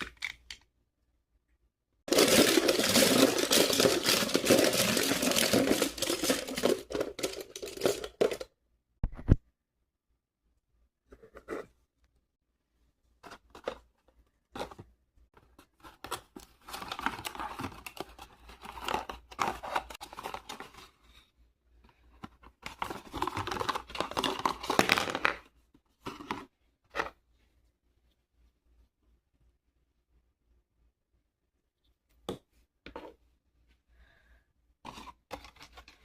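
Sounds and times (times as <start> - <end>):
wrapper crinkling and tearing: 2.1 - 8.2.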